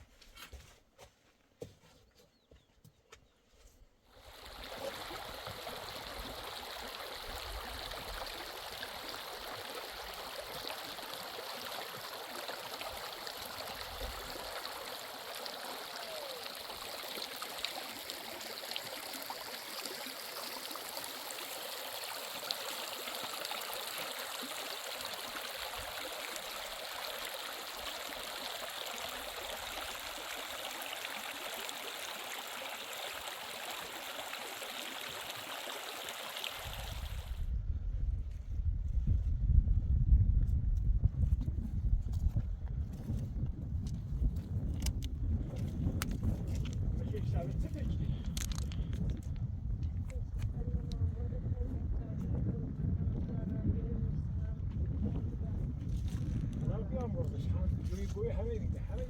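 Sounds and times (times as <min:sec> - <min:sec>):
mountain stream rushing: 0:04.2 - 0:37.3.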